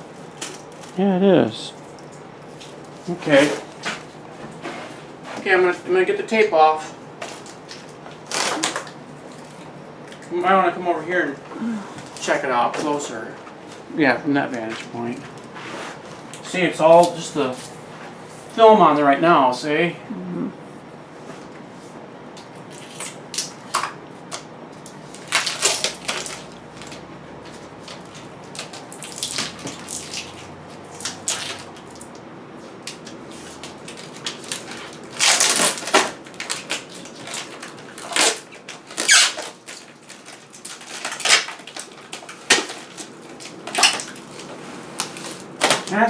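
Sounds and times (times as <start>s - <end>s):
plastic film and tape peeling: 5.4s - 9.7s, 16.4s - 17.9s, 22.5s - 46.0s.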